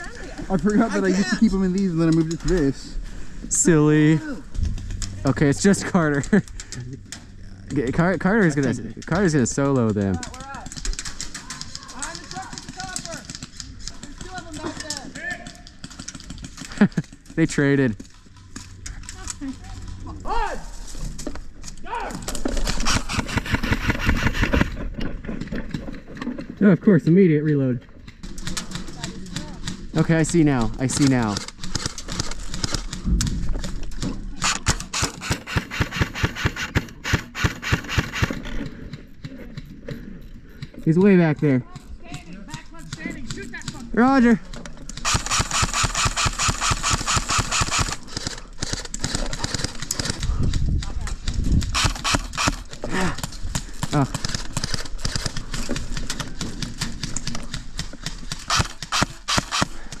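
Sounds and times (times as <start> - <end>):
magazine wheel ratcheting clicks: 22.5 - 24.7, 34.4 - 38.7, 44.6 - 50.3, 51.6 - 52.8, 58.4 - 60.0
airsoft rifle shots clacking: 22.6 - 24.7, 34.4 - 38.4, 44.9 - 50.2, 51.7 - 52.8, 58.3 - 60.0.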